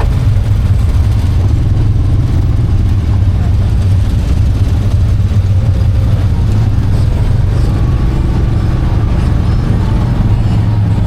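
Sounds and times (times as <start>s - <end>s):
atv engine droning: 0.0s - 11.0s.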